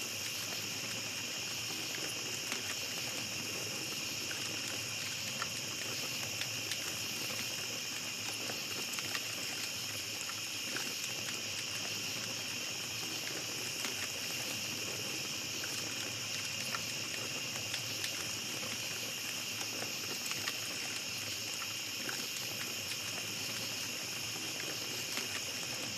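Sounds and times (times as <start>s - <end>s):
campfire crackling and popping: 0.0s - 25.9s
night insects chorus: 0.0s - 25.9s.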